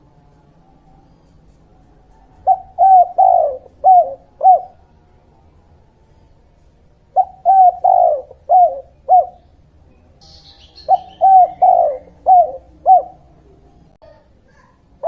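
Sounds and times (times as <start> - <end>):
dove cooing: 0.0 - 5.6, 6.4 - 14.8
small bird chirping: 7.2 - 14.8.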